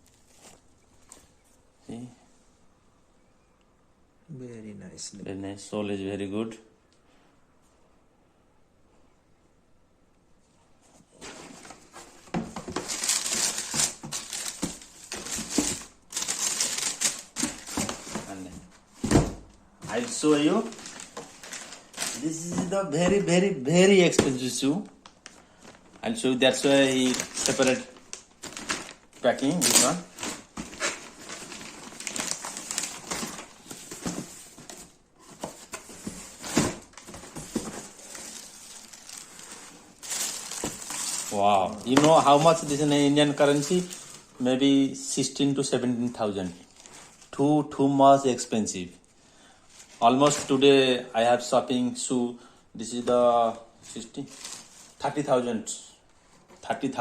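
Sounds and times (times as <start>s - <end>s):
packaging crinkling and rustling: 11.2s - 44.4s, 46.0s - 47.4s, 53.8s - 55.2s.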